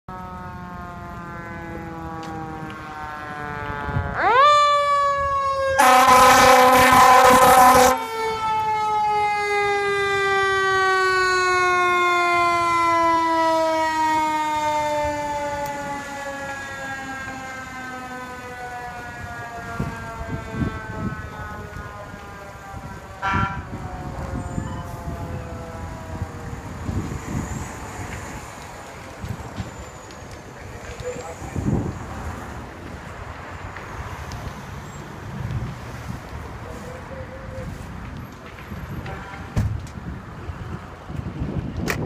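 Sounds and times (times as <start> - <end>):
fire engine siren wailing: 0.1 - 42.0
loud horn blast: 5.8 - 8.4, 23.2 - 23.7, 39.0 - 39.6.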